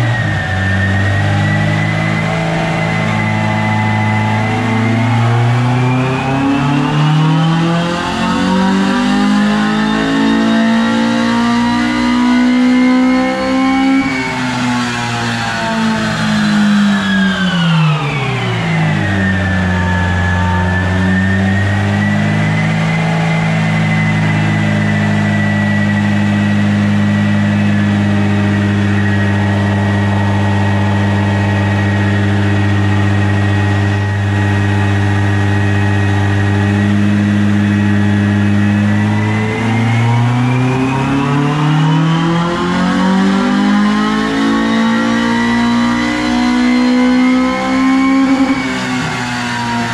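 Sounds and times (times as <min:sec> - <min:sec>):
four-cylinder car engine running: 0:21.2 - 0:40.0.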